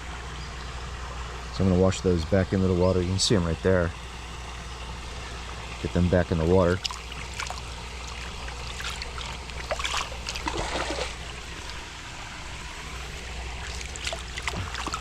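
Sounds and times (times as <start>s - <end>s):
flowing water: 0.0s - 15.0s
water trickling and splashing: 4.0s - 15.0s.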